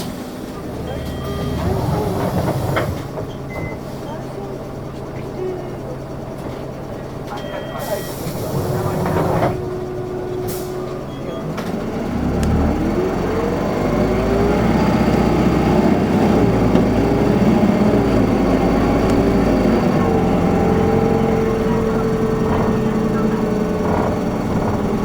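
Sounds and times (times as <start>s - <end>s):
bus diesel engine accelerating: 0.0s - 25.0s
air brakes hissing: 1.3s - 4.2s, 7.7s - 11.1s.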